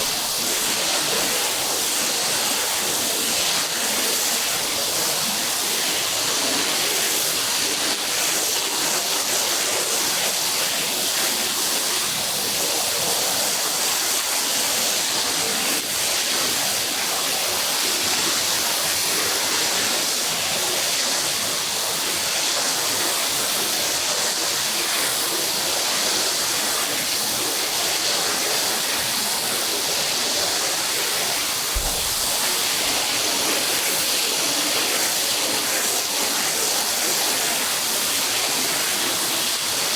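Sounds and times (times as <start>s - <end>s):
water spray rinsing carpet: 30.8s - 34.4s
low thump: 31.7s - 33.1s.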